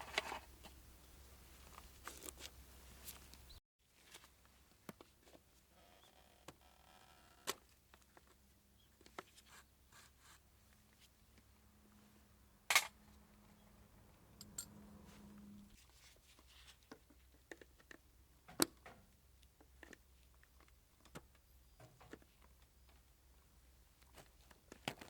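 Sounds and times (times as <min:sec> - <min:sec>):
faint steady hum: 0:08.4 - 0:16.5
small clicks and light knocks: 0:16.8 - 0:23.1.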